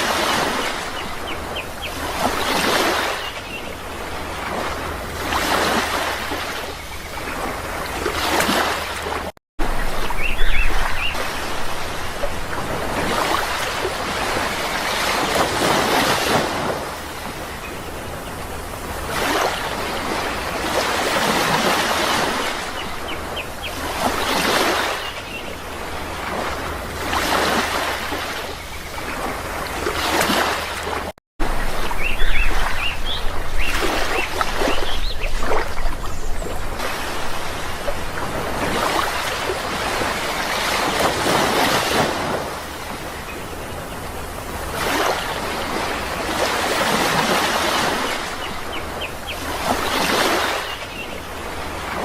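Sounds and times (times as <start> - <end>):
sea waves breaking on shore: 0.0 - 52.0
faint bird chirps: 10.0 - 11.2.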